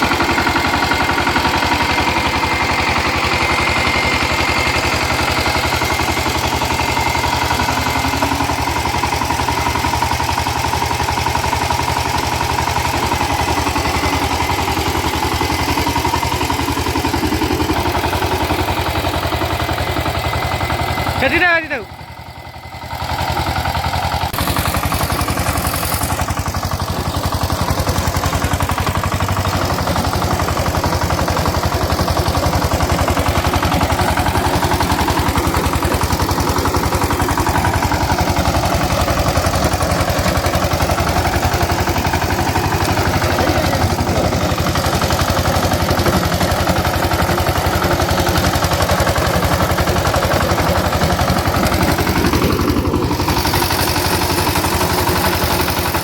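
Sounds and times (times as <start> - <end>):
tiller engine running: 0.0 - 56.0.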